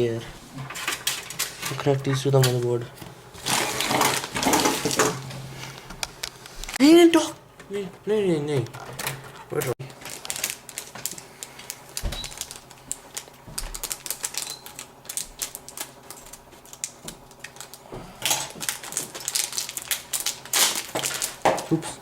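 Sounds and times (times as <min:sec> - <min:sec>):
plastic connectors clicking and rattling: 0:08.7 - 0:11.2.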